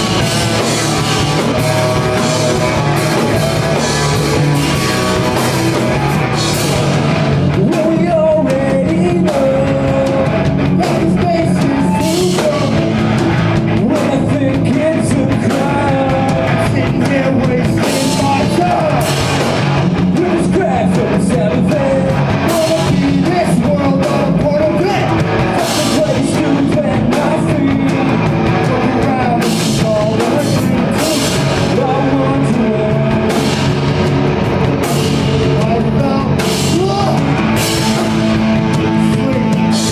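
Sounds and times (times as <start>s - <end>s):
drum kit with cymbal crashes: 0.0s - 8.2s, 22.1s - 39.9s
distorted electric guitars: 0.0s - 39.9s
person singing: 7.4s - 13.0s, 13.6s - 19.4s, 20.0s - 34.0s, 35.1s - 39.9s.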